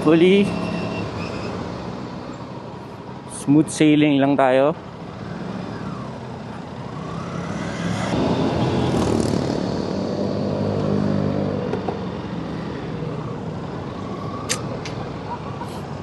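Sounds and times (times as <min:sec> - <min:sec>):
motorcycle engine revving: 0:05.0 - 0:12.5.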